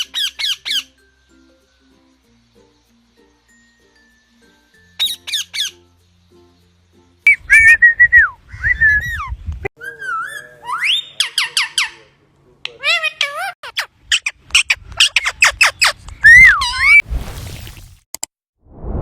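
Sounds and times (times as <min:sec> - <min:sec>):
parrots squawking: 0:00.0 - 0:01.0, 0:09.8 - 0:12.1
parrot whistling: 0:14.2 - 0:17.0.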